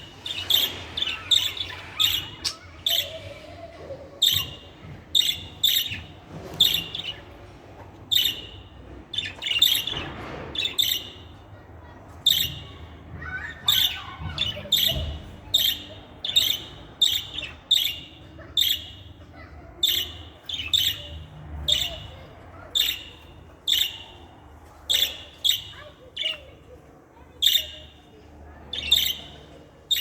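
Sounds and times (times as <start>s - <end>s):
budgerigar chirping: 13.7s - 19.1s, 22.8s - 24.2s, 24.9s - 26.5s, 28.7s - 30.0s.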